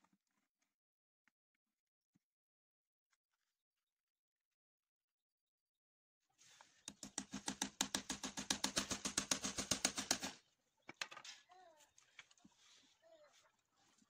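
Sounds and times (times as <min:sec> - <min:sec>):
rapid mechanical clicking: 0:06.9 - 0:10.4.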